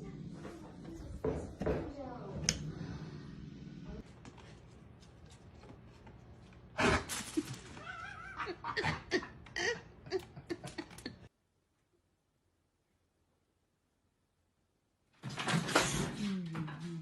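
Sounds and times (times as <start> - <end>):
pet crying: 7.7 - 9.0.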